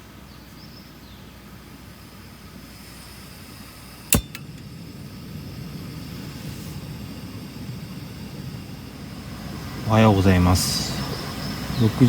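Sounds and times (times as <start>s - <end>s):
low outdoor rumble: 0.0s - 12.0s
sharp click: 4.1s - 4.6s.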